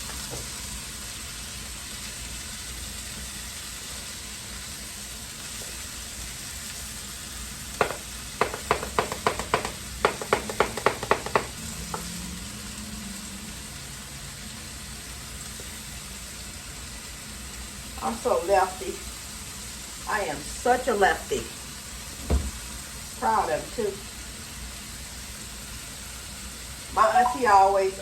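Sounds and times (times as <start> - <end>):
burger patties sizzling in a pan: 0.0 - 28.0
rapid sharp taps: 7.8 - 11.6.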